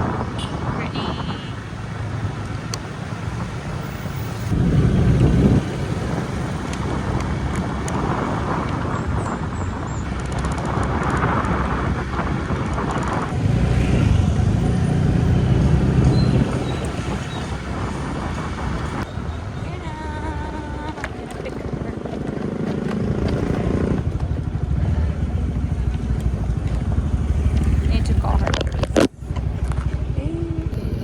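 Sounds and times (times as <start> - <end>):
wind on microphone: 0.0 - 25.4
motorbike engine rumble: 0.0 - 31.0.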